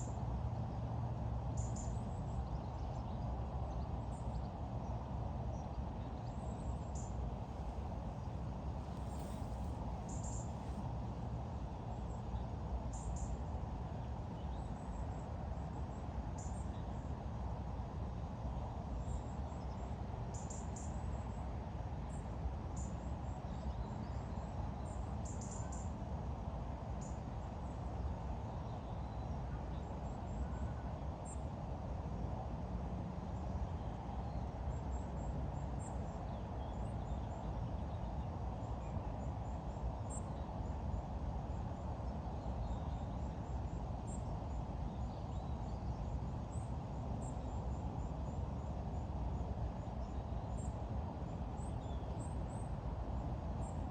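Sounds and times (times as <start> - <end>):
low outdoor background noise: 0.0 - 53.9.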